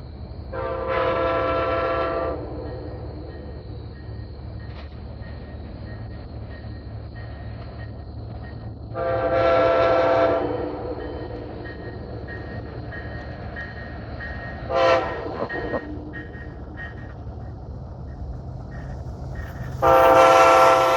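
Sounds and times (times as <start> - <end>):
passing train rumble: 0.0 - 20.9
locomotive air horn blasts: 0.5 - 2.6, 9.0 - 10.9, 14.7 - 16.0, 19.8 - 20.9.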